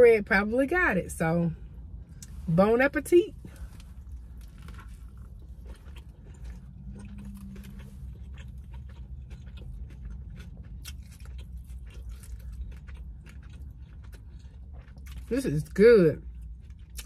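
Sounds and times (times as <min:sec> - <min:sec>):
person chewing with mouth clicks: 0:03.7 - 0:15.3, 0:16.3 - 0:17.0.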